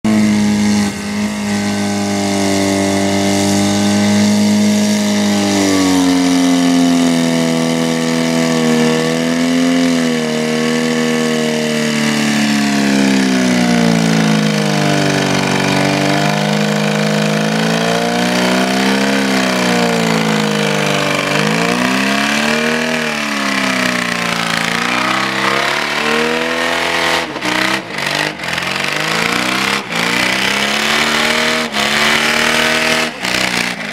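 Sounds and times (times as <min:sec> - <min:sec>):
car engine revving hard: 0:00.0 - 0:33.9.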